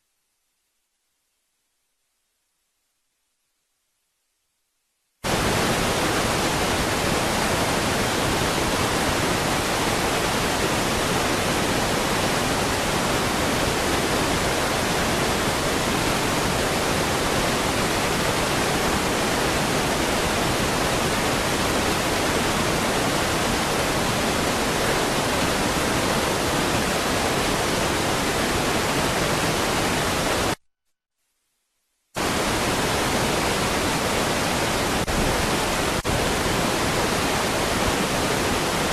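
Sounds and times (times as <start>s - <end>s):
steady rushing hiss: 5.2s - 30.6s, 32.2s - 38.9s.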